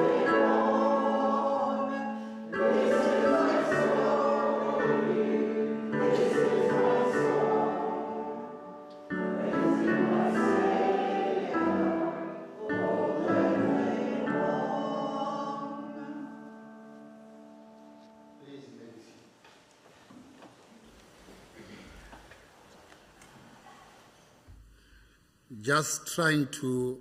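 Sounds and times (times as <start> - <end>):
group singing a hymn: 0.0 - 17.0.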